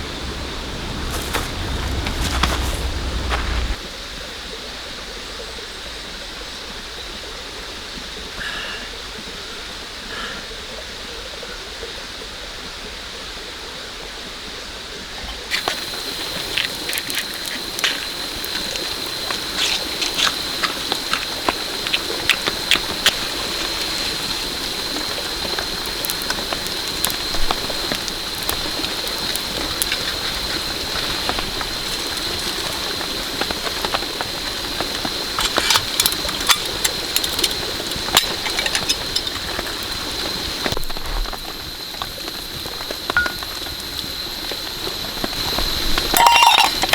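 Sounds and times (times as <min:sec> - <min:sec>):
rain falling: 0:00.0 - 0:03.8, 0:15.5 - 0:46.9
thin high whine: 0:00.0 - 0:03.8, 0:15.5 - 0:46.9.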